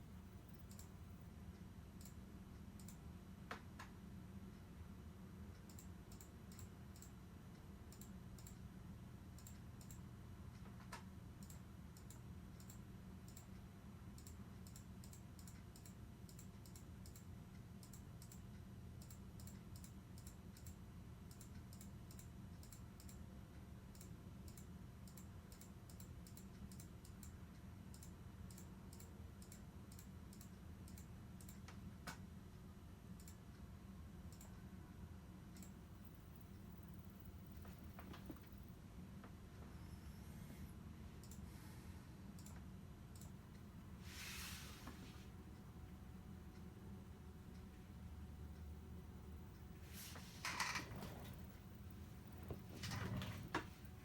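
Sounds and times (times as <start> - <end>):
low steady hum: 0.0 - 54.0
faint high-pitched clicks: 0.4 - 4.7, 34.3 - 34.6.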